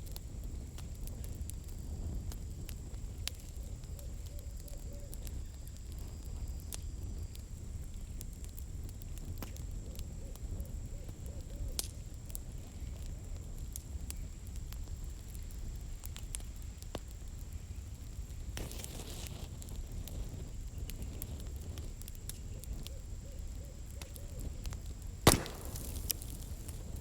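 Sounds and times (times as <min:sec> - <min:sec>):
low rumble of flames: 0:00.0 - 0:27.0
wood crackling and popping: 0:00.0 - 0:27.0.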